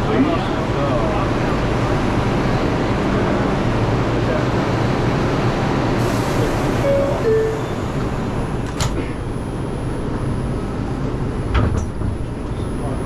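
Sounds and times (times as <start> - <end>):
subway train rumble: 0.0 - 13.0
two-tone door chime: 6.8 - 7.9.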